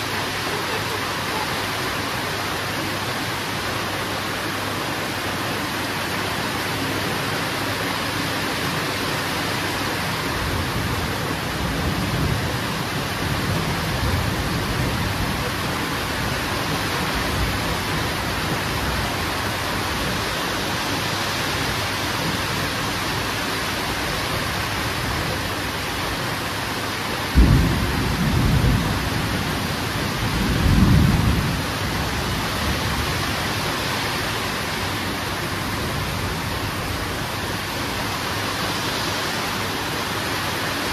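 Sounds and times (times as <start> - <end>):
heavy rain hissing: 0.0 - 40.9
distant thunder rumbling: 27.3 - 33.4.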